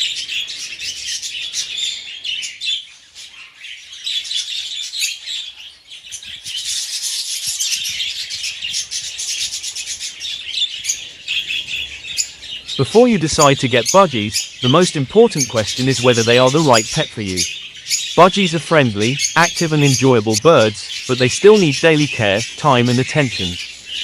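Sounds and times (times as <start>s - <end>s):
budgerigars chattering: 6.2s - 24.0s.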